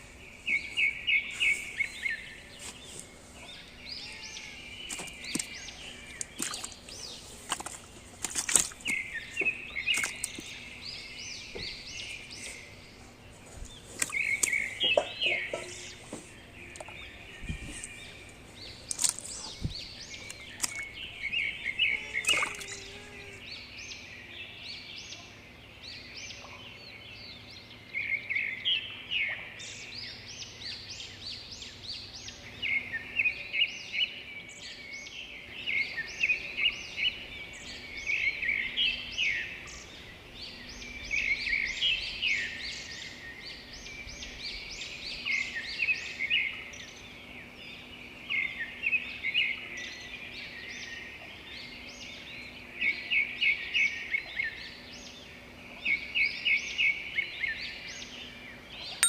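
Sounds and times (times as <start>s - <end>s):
birds chirping: 0.0s - 33.5s.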